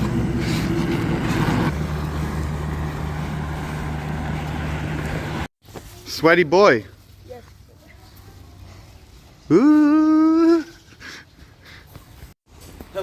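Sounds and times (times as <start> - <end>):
vehicle engine running: 0.0 - 5.5.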